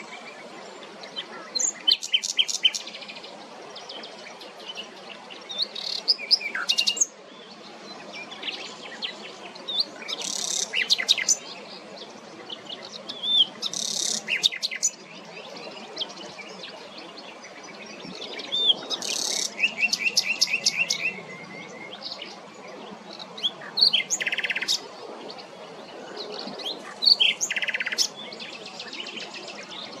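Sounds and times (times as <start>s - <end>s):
nightingale singing: 17.8s - 22.3s.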